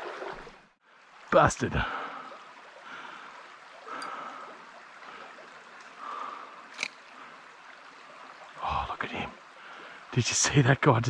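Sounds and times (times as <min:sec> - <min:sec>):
creek water trickling: 0:00.0 - 0:11.0.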